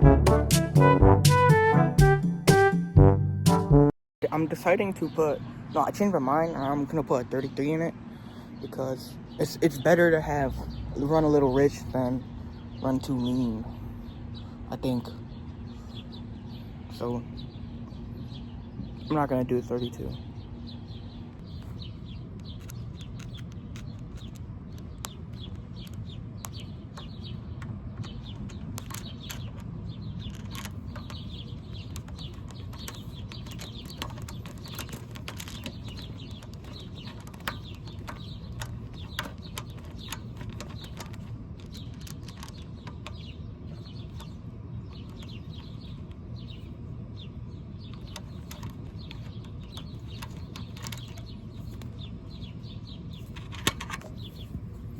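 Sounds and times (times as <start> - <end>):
small birds chirping: 4.2 - 54.9
hand tools clicking on metal: 27.0 - 43.3, 48.0 - 52.0.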